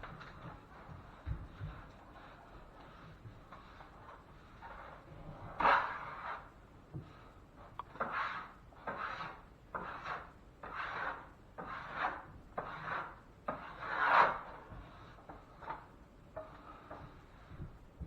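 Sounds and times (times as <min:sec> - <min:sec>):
drywall knife scraping compound: 0:00.0 - 0:17.6.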